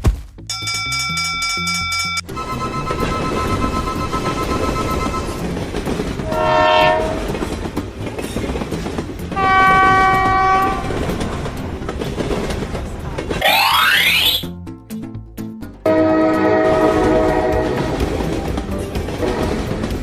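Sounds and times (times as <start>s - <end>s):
train rumbling on rails: 2.3s - 13.4s, 15.9s - 20.0s
train horn blasts: 6.2s - 7.4s, 9.3s - 11.1s, 15.8s - 18.2s
rising tone: 13.4s - 14.5s.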